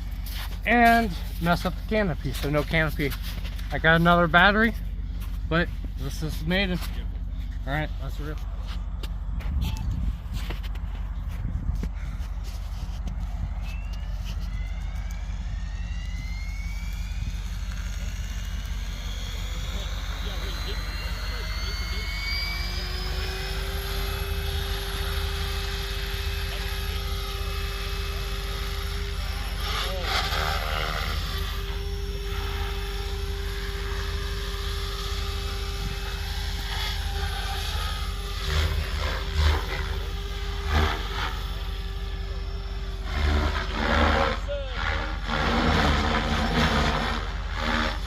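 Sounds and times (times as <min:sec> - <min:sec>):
rc helicopter motor whine: 0:00.0 - 0:48.0.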